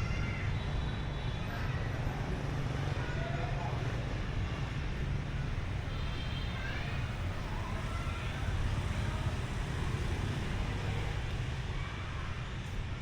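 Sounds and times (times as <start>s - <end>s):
faint voices: 0.0s - 13.0s
road traffic rumble: 0.0s - 13.0s.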